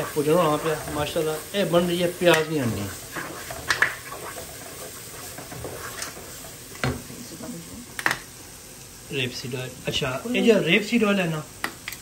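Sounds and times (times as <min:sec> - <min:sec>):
wooden spoon stirring and scraping: 0:00.0 - 0:07.6
paste sizzling in a pot: 0:00.0 - 0:12.0.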